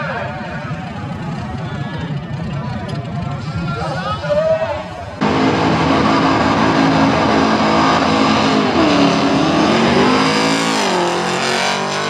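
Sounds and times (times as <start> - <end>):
car engine revving hard: 5.2 - 12.0.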